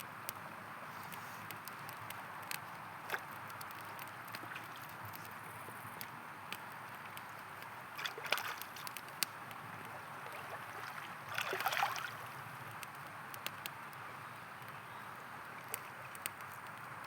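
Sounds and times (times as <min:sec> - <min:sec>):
campfire crackling and popping: 0:00.1 - 0:17.0
river flowing: 0:06.3 - 0:12.6.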